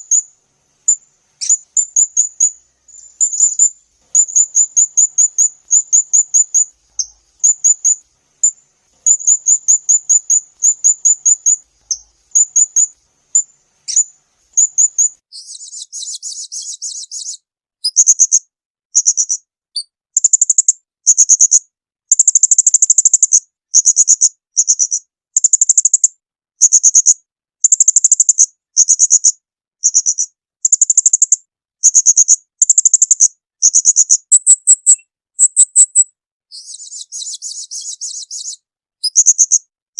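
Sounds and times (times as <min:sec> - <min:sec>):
songbird trilling: 0:00.0 - 0:00.3, 0:00.9 - 0:18.4, 0:26.7 - 0:39.6
bird buzzy rattle: 0:00.8 - 0:15.2.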